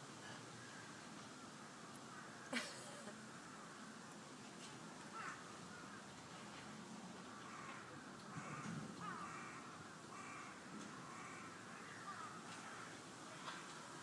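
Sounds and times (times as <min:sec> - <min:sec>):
bird calling: 0:05.1 - 0:06.1, 0:07.3 - 0:13.7.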